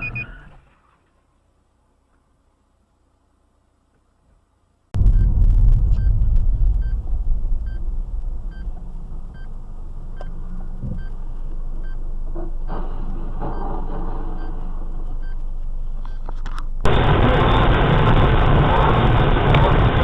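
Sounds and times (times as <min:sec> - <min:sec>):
short electronic beeps: 0:00.0 - 0:00.5, 0:05.0 - 0:11.2
car driving rumble: 0:05.0 - 0:20.0.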